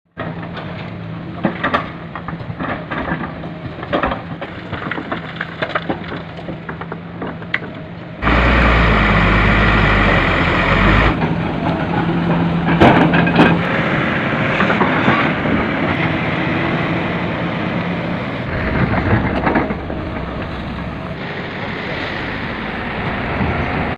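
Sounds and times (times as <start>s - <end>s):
sharp cracks and knocks: 0.2s - 7.8s
diesel truck engine running: 8.2s - 23.9s
loud rushing noise with deep rumble: 8.2s - 23.9s.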